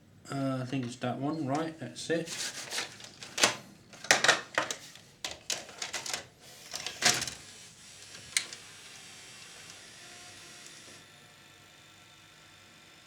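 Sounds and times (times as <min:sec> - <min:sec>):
short plastic clattering: 0:02.8 - 0:07.4.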